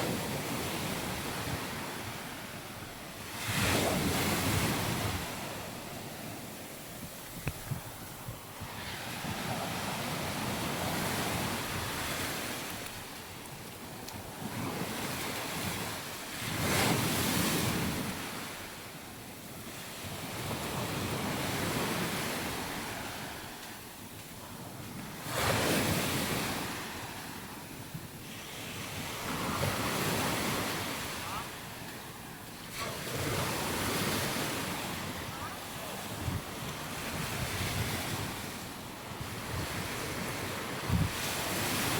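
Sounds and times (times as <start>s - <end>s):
waves breaking on beach: 0.0s - 41.9s
wind buffeting microphone: 3.5s - 12.8s, 36.1s - 41.9s.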